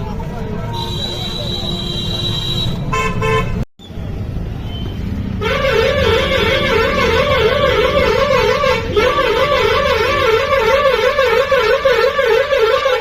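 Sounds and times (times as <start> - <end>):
vehicle warbling horn: 5.4 - 13.0.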